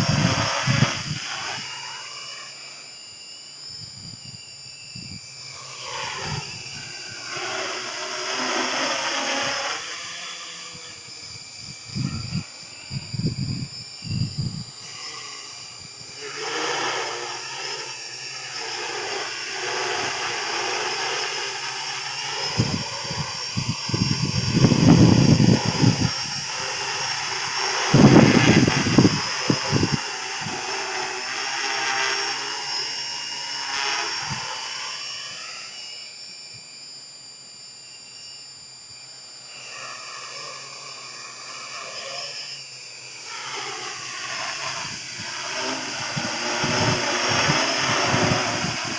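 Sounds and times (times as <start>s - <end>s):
wind buffeting microphone: 0.0s - 1.6s, 10.8s - 15.0s, 22.4s - 30.7s, 44.0s - 48.9s
drone propellers whining: 0.0s - 48.9s.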